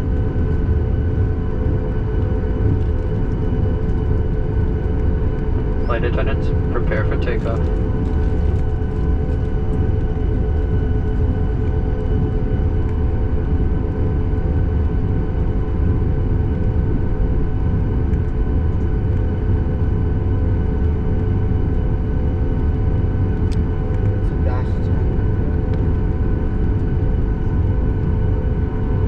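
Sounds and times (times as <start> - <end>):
aircraft cabin rumble: 0.0 - 29.0
jet engines whining: 4.8 - 8.0.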